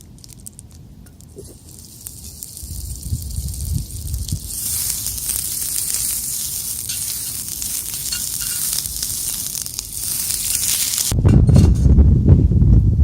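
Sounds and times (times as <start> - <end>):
patty sizzling: 0.0 - 11.2.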